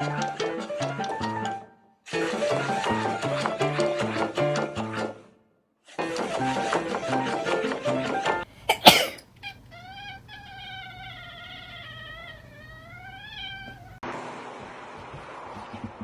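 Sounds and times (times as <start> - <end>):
cat meowing: 9.4 - 14.0.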